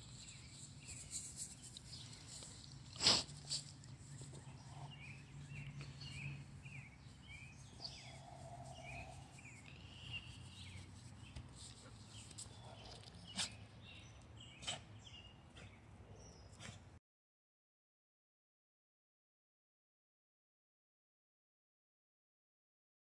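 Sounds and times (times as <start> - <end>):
faint birdsong chirps: 0.0 - 16.8.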